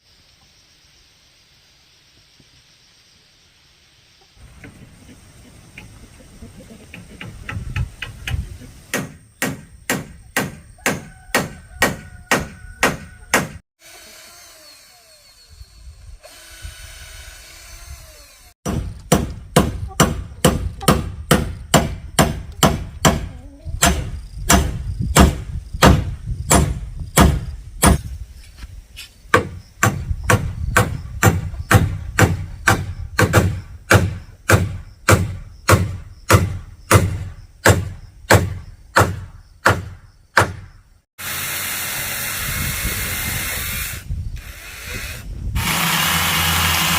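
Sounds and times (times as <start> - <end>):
hand tool striking wood: 6.9 - 13.6, 18.7 - 28.1, 29.3 - 40.7.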